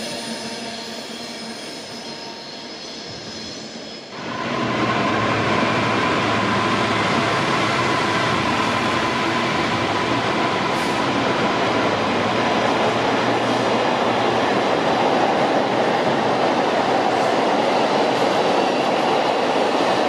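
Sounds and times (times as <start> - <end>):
train wheels rushing on rail: 0.0 - 20.0.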